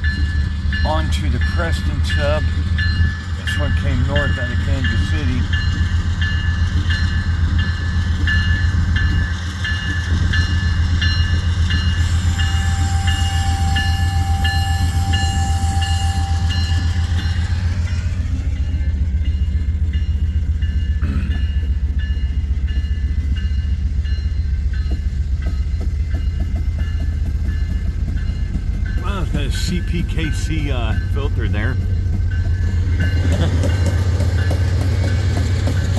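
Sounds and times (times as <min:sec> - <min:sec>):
train rolling past rumbling: 0:00.0 - 0:35.9.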